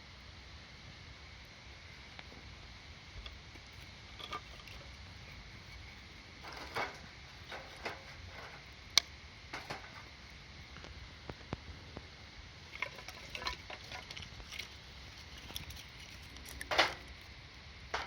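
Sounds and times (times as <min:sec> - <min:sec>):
campfire crackling: 0:00.4 - 0:18.0.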